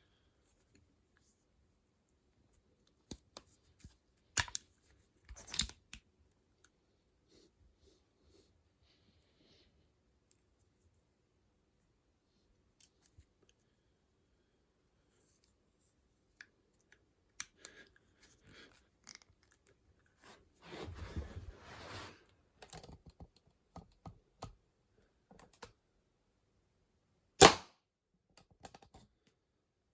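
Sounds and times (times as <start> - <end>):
air pistol shot: 27.4 - 27.7.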